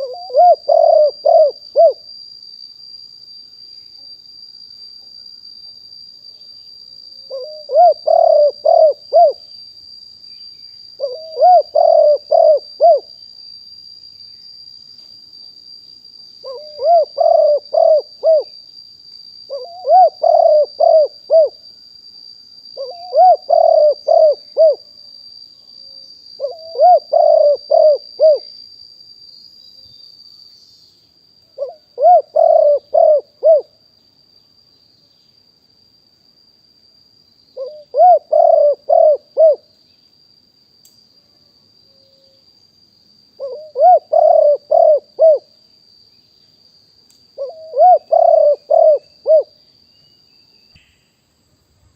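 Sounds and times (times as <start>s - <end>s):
dove cooing: 0.0s - 2.0s, 7.3s - 9.4s, 11.0s - 13.1s, 16.4s - 18.5s, 19.5s - 21.6s, 22.8s - 24.8s, 26.4s - 28.5s, 31.6s - 33.7s, 37.6s - 39.6s, 43.4s - 45.5s, 47.4s - 49.5s
high-pitched insect trill: 0.0s - 51.9s.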